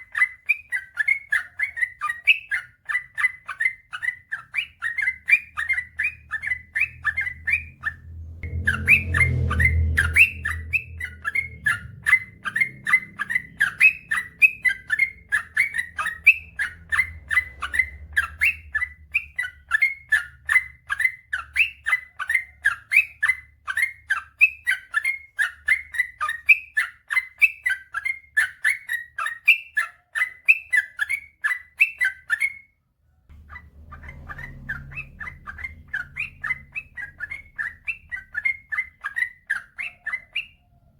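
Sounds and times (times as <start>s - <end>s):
bird chirping song: 0.0s - 40.9s
low rumble: 7.0s - 14.9s, 33.3s - 38.4s.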